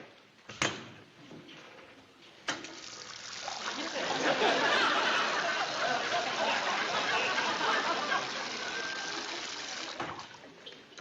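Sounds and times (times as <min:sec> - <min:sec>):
water running from a faucet: 0:02.8 - 0:10.4.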